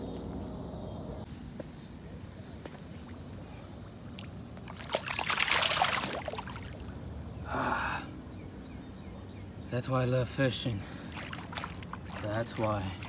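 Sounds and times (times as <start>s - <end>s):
water splashing and sloshing: 2.2s - 7.5s, 10.8s - 13.0s.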